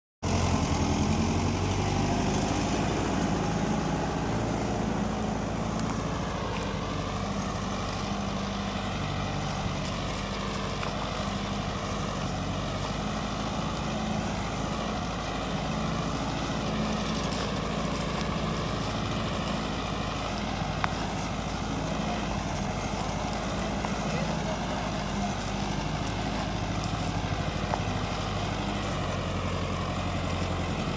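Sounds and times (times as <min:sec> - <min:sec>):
tractor diesel engine running: 0:00.2 - 0:30.9.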